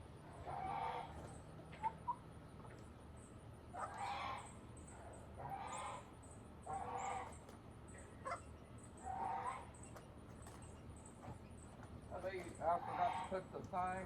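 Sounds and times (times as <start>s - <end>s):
poultry calling: 0.3s - 2.2s, 3.7s - 7.4s, 8.0s - 9.8s, 12.5s - 13.6s.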